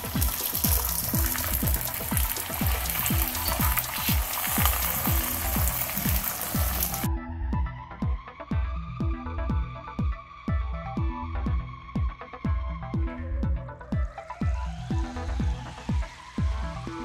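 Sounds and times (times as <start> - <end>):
flatbread sizzling on hot griddle: 0.0 - 7.1
music with electronic beat: 0.0 - 17.0.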